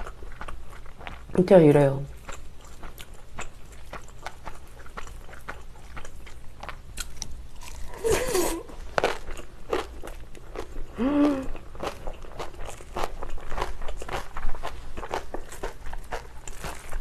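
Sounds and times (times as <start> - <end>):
crisp chewing crunches: 0.0 - 1.4, 2.1 - 17.0
person humming: 7.9 - 8.7, 10.9 - 11.6.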